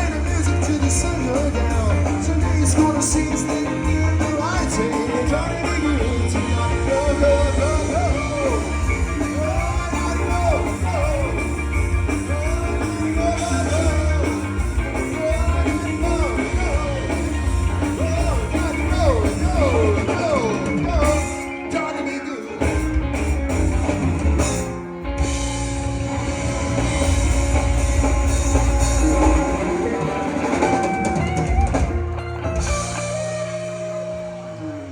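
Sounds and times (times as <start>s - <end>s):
person singing: 0.0s - 22.6s
drum kit: 0.0s - 34.9s
electric guitar: 0.0s - 34.9s.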